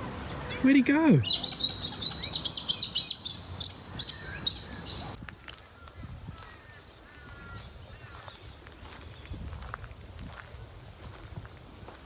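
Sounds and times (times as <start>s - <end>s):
birds chirping: 0.0s - 5.2s.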